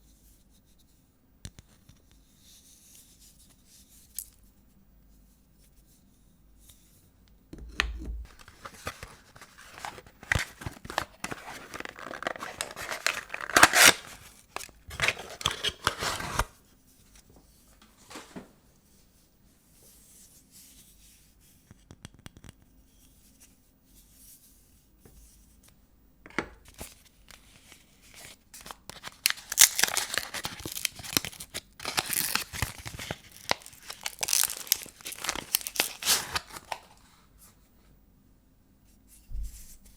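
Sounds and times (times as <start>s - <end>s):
paper wrapping tearing and crinkling: 8.2s - 16.5s, 28.1s - 37.0s.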